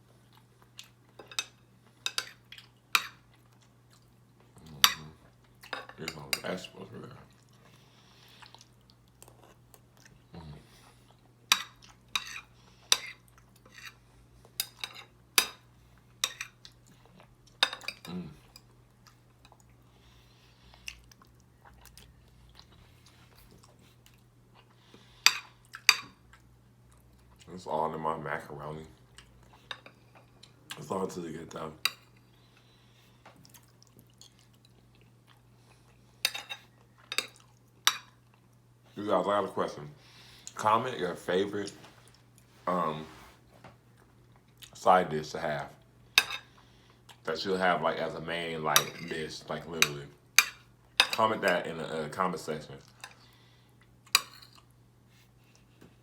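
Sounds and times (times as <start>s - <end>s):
low electrical hum: 0.0s - 56.0s
spoon scraping a dish: 11.5s - 14.0s.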